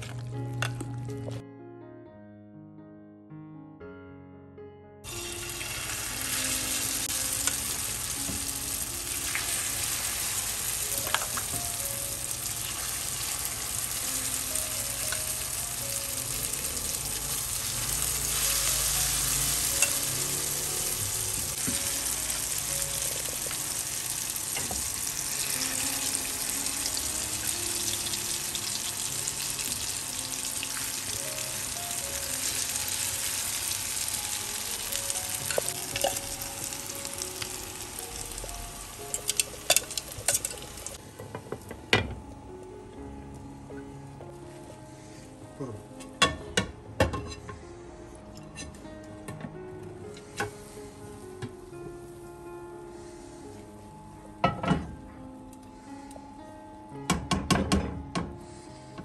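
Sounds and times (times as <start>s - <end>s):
food sizzling in a frying pan: 5.1s - 41.0s.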